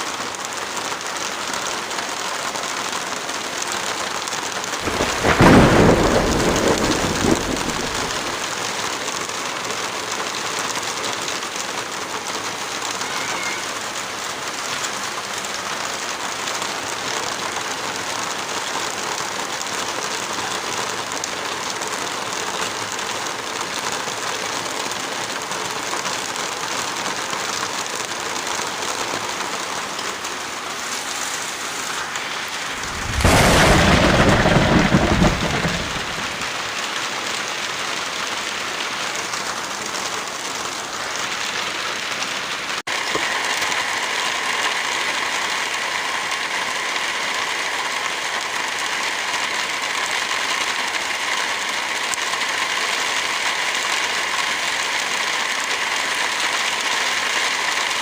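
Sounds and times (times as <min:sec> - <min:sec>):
heavy rain falling: 0:00.0 - 0:58.0
loud low rumble: 0:32.6 - 0:36.5.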